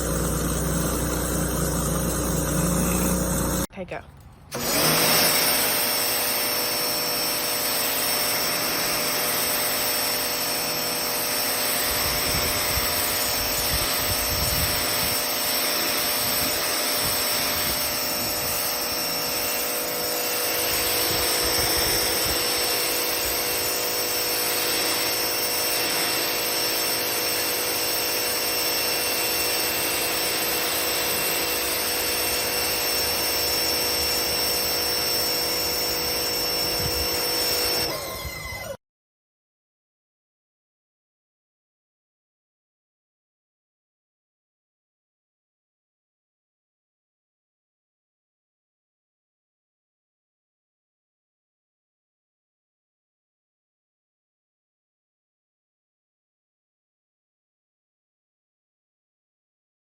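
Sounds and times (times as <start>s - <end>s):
machine high whine: 0.0s - 3.7s
pressure washer water jet hissing: 0.0s - 3.7s, 4.5s - 37.9s.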